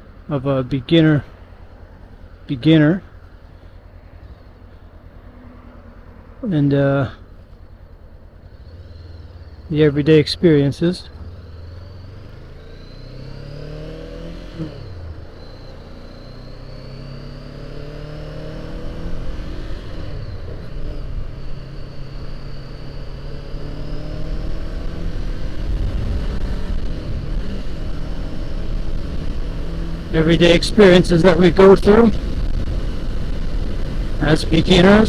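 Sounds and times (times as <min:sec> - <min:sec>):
motorcycle engine accelerating: 0:07.3 - 0:35.0
wind rumble on microphone: 0:24.5 - 0:30.2, 0:32.0 - 0:35.0.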